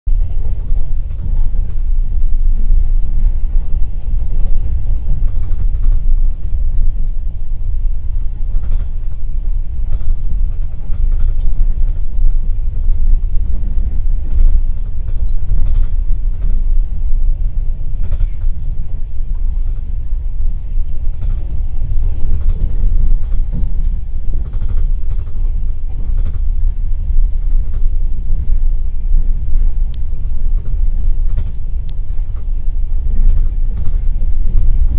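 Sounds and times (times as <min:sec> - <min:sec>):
train wheels rumbling on track: 0:00.1 - 0:34.9
carriage clicks and creaks: 0:19.5 - 0:26.5.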